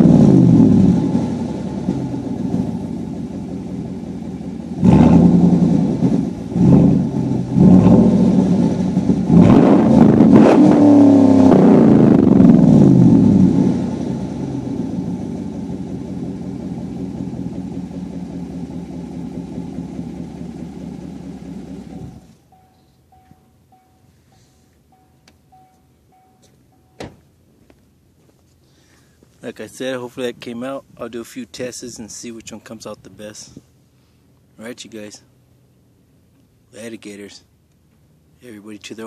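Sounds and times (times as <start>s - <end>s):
truck exhaust revving and idling: 0.0s - 22.5s.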